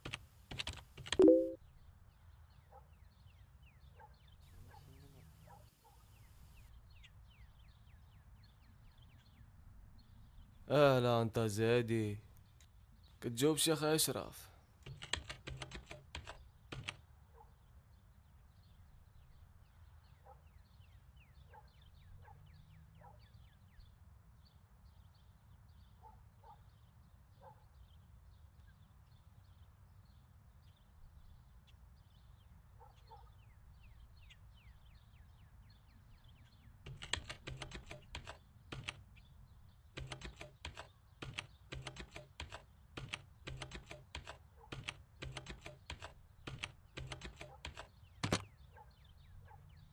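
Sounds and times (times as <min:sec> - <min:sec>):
fast typing on keyboard: 0:00.0 - 0:01.6, 0:14.8 - 0:17.0, 0:36.9 - 0:39.0, 0:40.0 - 0:48.4
faint high chirps: 0:01.2 - 0:01.6.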